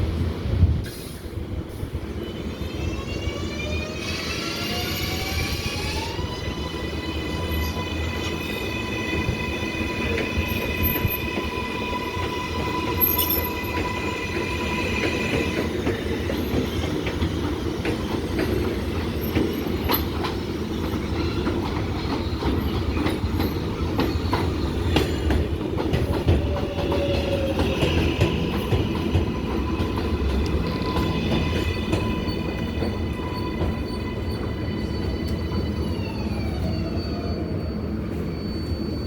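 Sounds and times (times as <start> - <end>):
subway train wheels rumbling on rail: 0.0 - 39.0
wheel squeal: 26.3 - 39.0.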